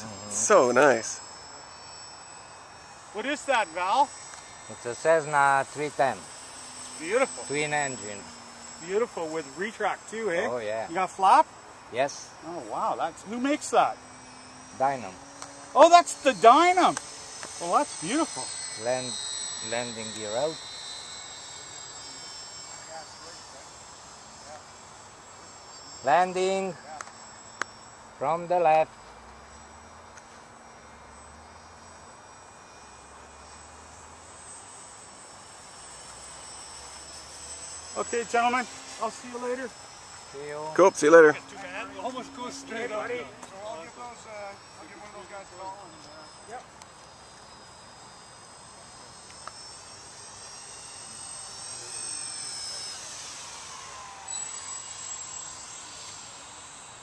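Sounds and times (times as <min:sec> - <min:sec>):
distant model plane motor drone: 0:00.0 - 0:57.0
insects chirring: 0:00.0 - 0:57.0.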